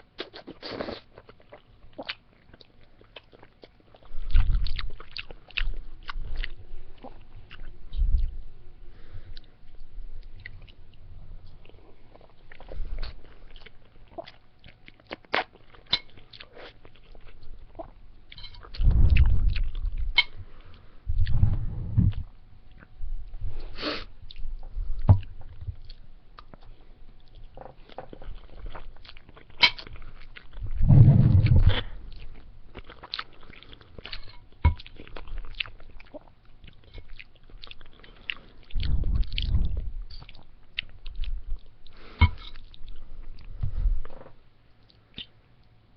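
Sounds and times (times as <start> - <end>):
person chewing: 0.0 - 45.8
low-pitched swell: 21.0 - 23.6, 30.6 - 32.1.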